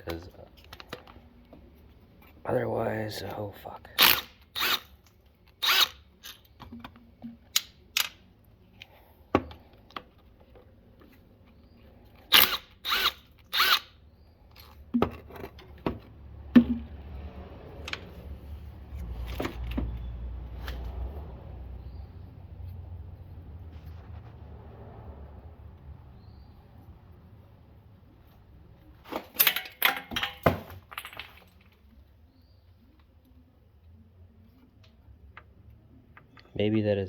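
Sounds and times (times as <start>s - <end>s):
hand tools clinking on metal: 29.2s - 31.6s.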